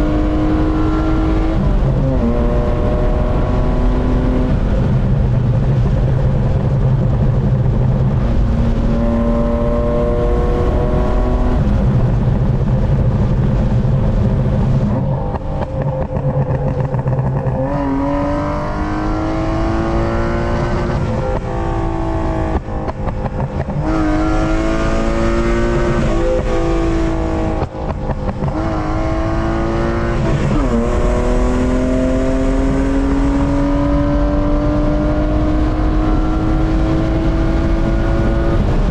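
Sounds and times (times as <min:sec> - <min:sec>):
car engine revving through gears: 0:00.0 - 0:05.1, 0:07.7 - 0:12.2, 0:14.3 - 0:38.9.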